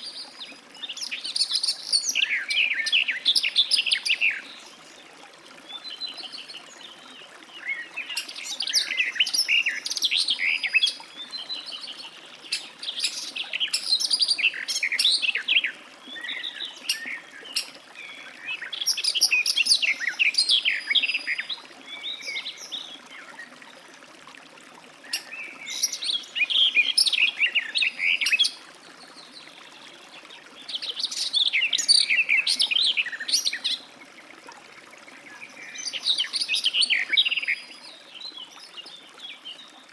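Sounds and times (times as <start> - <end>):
warbler singing: 7.7 - 23.0, 25.1 - 28.6, 30.6 - 33.9, 35.3 - 39.6.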